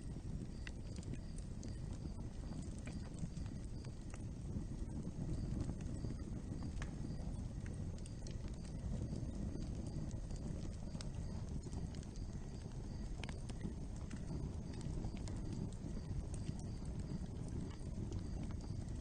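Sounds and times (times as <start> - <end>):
low rumble of flames: 0.0 - 19.0
wood crackling and popping: 0.0 - 19.0.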